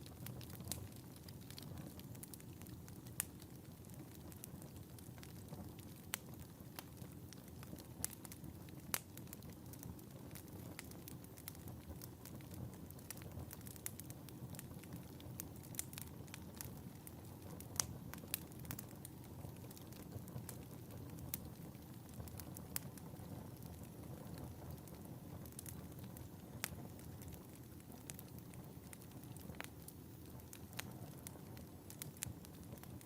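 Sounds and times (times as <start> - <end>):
fire crackling and popping: 0.0 - 33.0
fire flames rumbling: 0.0 - 33.0.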